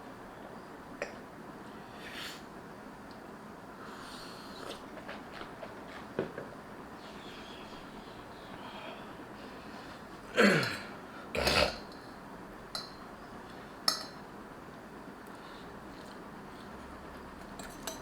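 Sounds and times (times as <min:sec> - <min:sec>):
utensil clinking bowl: 0:11.9 - 0:13.1, 0:13.8 - 0:14.3, 0:17.4 - 0:18.0.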